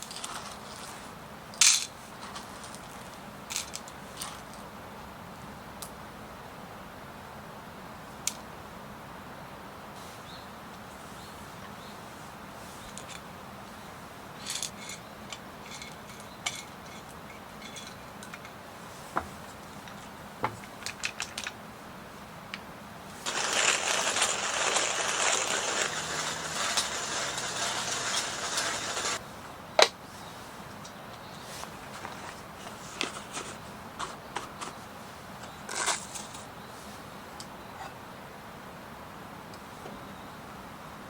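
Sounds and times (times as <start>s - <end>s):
loud continuous rustling: 0.0s - 4.7s, 23.1s - 29.2s, 30.1s - 37.0s.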